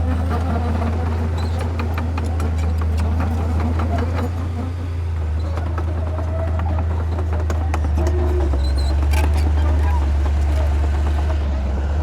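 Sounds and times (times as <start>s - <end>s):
diesel machine droning: 0.0s - 12.0s.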